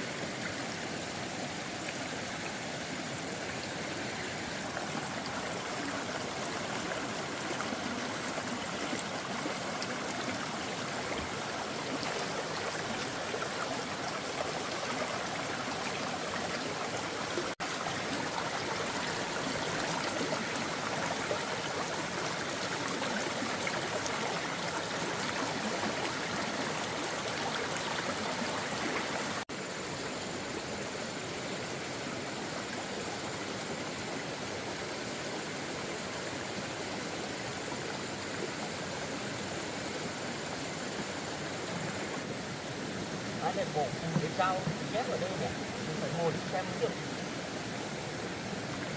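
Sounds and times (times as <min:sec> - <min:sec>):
running water: 0:00.0 - 0:48.9.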